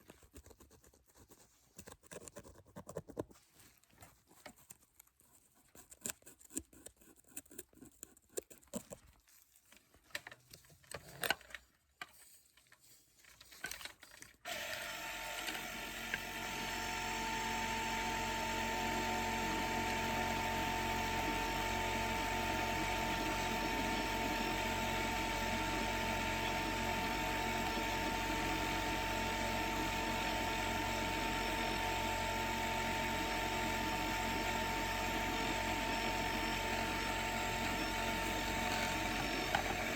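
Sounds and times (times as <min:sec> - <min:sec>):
dental drill whining: 0:14.5 - 0:39.9.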